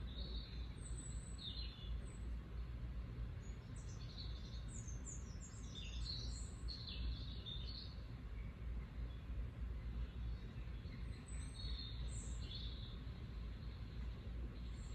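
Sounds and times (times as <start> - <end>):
birds chirping: 3.3 - 14.9.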